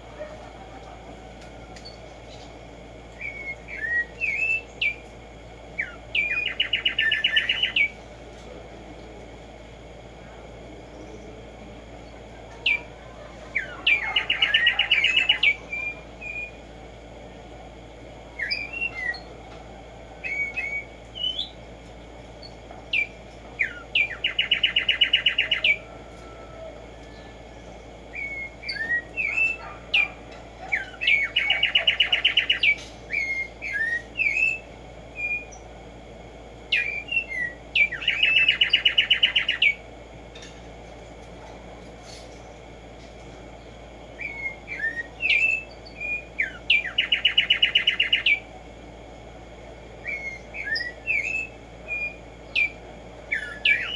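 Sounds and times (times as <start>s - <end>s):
sparrow singing a trill: 1.8s - 5.1s, 5.7s - 8.1s, 12.0s - 16.6s, 18.3s - 19.4s, 20.2s - 21.7s, 22.4s - 35.7s, 36.7s - 40.5s, 43.0s - 48.5s, 50.0s - 53.9s.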